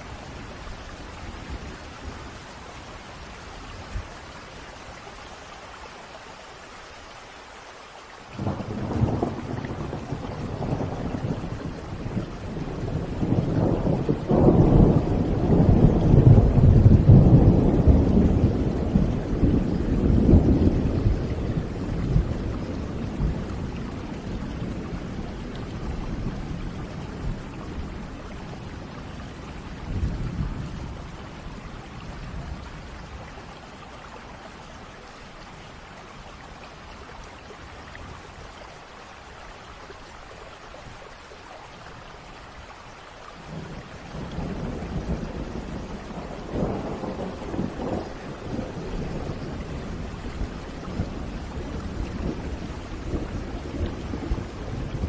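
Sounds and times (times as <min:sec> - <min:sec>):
steady rain: 0:00.0 - 0:55.0
thunder rolling: 0:08.4 - 0:24.8, 0:43.5 - 0:55.0.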